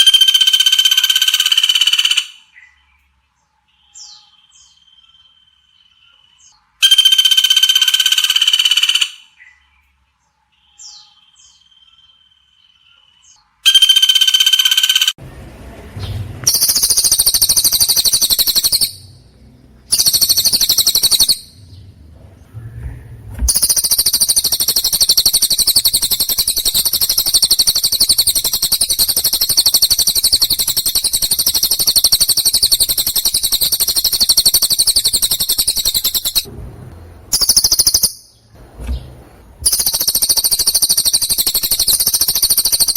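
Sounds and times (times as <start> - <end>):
bird whistled note: 6.8 - 9.0, 13.6 - 15.1, 23.5 - 36.5
songbird chattering trill: 16.5 - 19.2, 19.8 - 21.9, 23.5 - 36.5, 37.3 - 38.5, 39.6 - 42.9.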